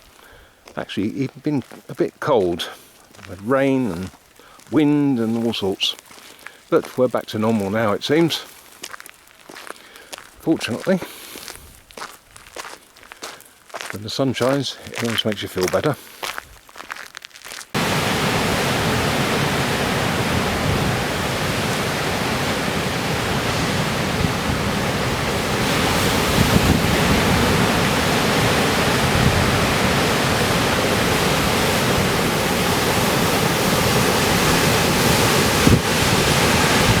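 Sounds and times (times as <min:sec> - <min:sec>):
loud rushing noise: 0:17.8 - 0:37.0.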